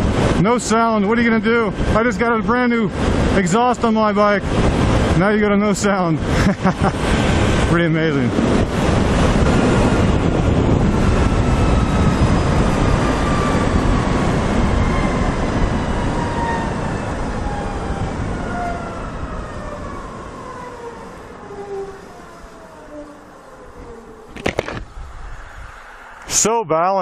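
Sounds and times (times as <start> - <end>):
wind rushing: 0.0 - 27.0
electric motorcycle whine: 8.4 - 25.6.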